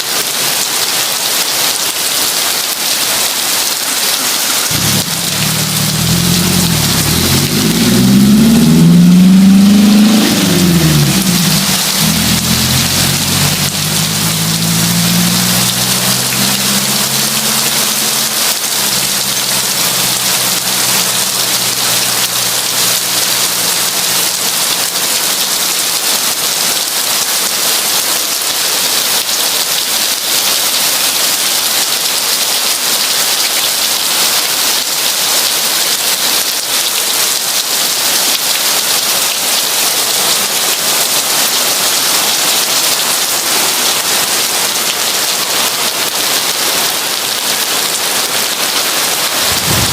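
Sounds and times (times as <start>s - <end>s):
heavy rain hiss: 0.0s - 49.9s
low droning hum: 49.5s - 49.9s.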